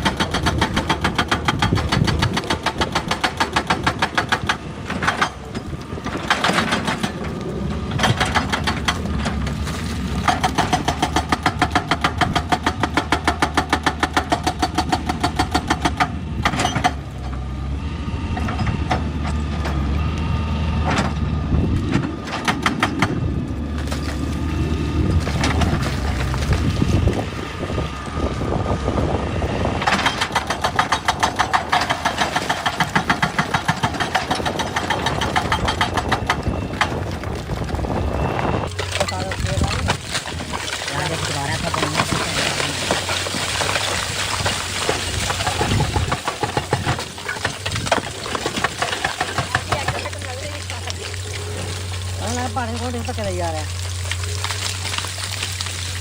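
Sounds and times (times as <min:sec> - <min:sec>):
hydraulic rock breaker hammering: 0:00.0 - 0:09.6, 0:10.2 - 0:17.4, 0:21.8 - 0:23.2, 0:29.8 - 0:37.4, 0:38.7 - 0:53.4
diesel engine drone: 0:00.0 - 0:56.0.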